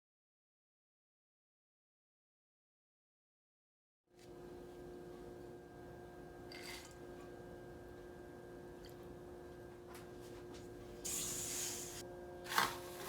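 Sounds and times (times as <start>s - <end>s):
faint steady hum: 4.2s - 13.0s
hiss: 11.0s - 12.0s.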